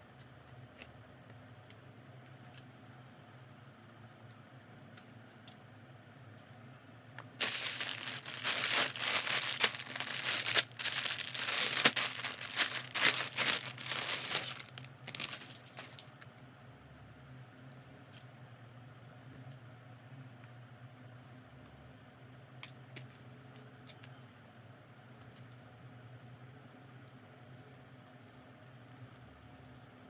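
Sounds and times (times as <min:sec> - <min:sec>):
plastic packaging crinkling: 0:07.4 - 0:16.1.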